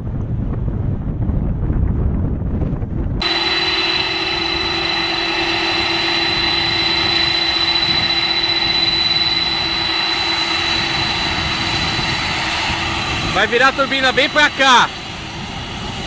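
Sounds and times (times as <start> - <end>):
jet engines whining: 3.2 - 16.0
low steady hum: 3.2 - 16.0.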